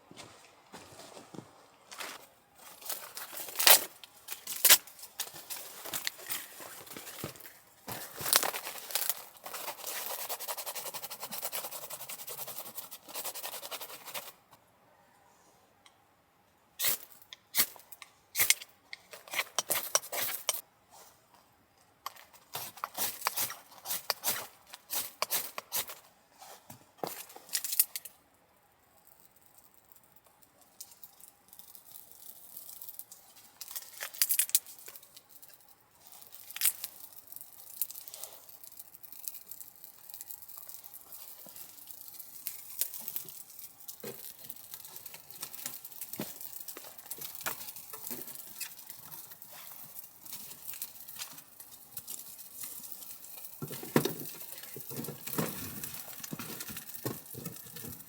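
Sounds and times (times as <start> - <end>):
rustling of gear: 0.1 - 10.2
packaging clicks and crinkling tears: 2.8 - 10.1.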